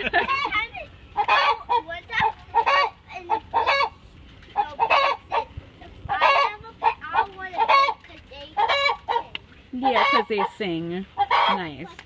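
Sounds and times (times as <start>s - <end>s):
hen cackling: 1.2s - 4.0s, 4.6s - 5.5s, 6.1s - 8.0s, 8.6s - 9.2s, 9.8s - 11.8s.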